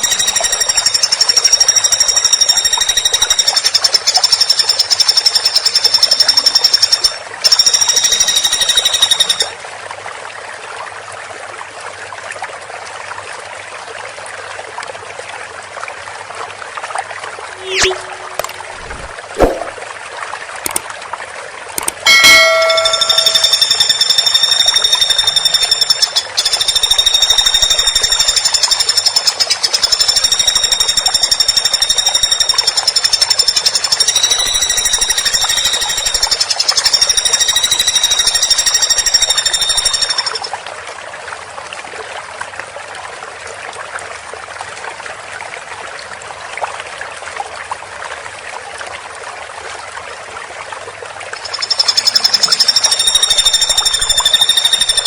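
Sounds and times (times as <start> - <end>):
woodpecker drumming: 0.0 - 9.5, 21.8 - 40.5, 51.4 - 55.0.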